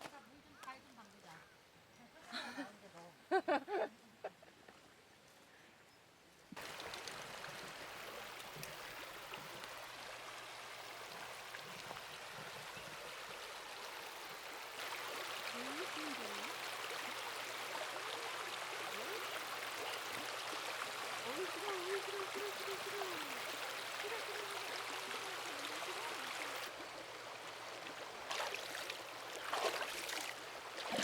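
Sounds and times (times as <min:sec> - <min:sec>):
water rushing over rocks: 0:14.6 - 0:26.7, 0:28.0 - 0:31.0.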